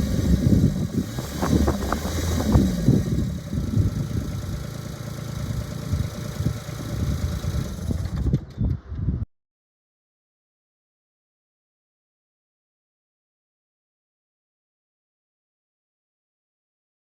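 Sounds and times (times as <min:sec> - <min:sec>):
tractor diesel engine running: 0:00.0 - 0:08.5.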